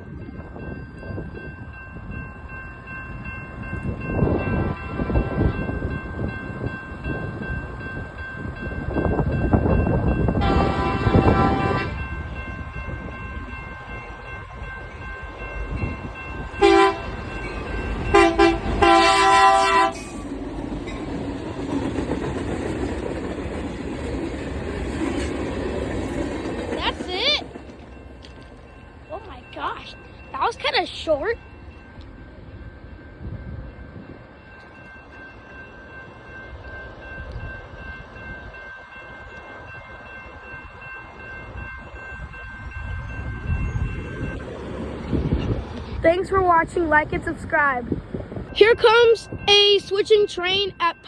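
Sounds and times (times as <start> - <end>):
train rumble: 0.0 - 51.0
locomotive air horn blasts: 10.4 - 12.0, 16.6 - 17.2, 18.1 - 20.2.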